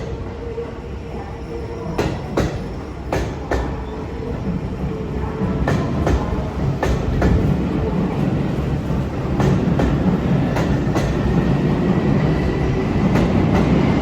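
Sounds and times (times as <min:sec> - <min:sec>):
electric train rumbling past: 0:00.0 - 0:14.0
train wheels clicking over rail joints: 0:05.6 - 0:07.6, 0:08.9 - 0:11.7.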